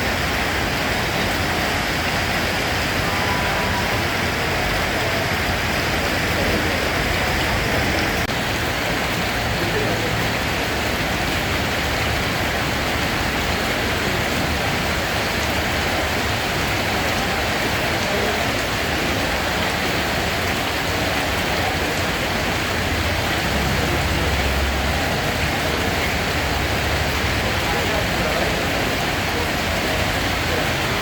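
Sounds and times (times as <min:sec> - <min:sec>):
steady rain hiss: 0:00.0 - 0:31.0.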